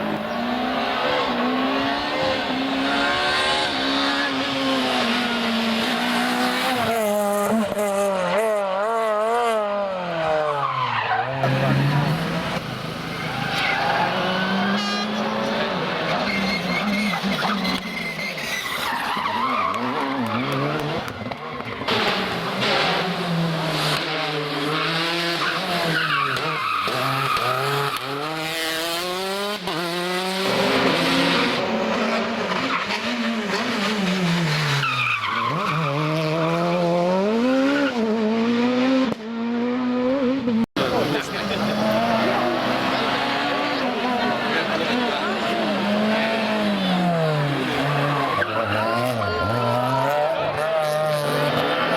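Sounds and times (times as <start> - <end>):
rally car engines revving: 0.0 - 51.9.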